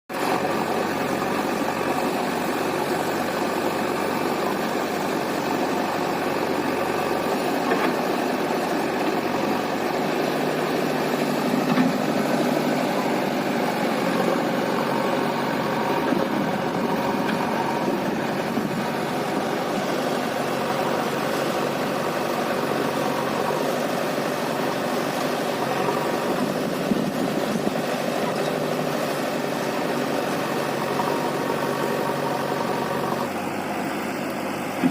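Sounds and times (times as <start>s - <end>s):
diesel engines running: 0.1s - 34.9s.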